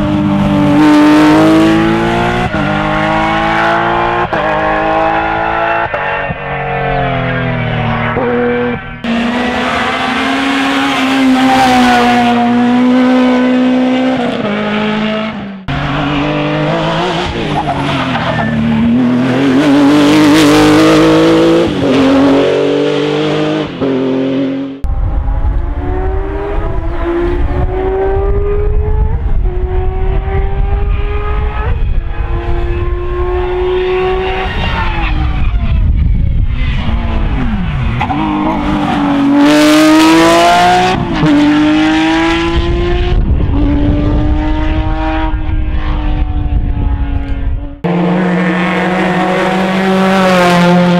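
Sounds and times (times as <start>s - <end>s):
rally car engines revving: 0.0s - 50.9s
tyre squeal: 17.3s - 18.9s.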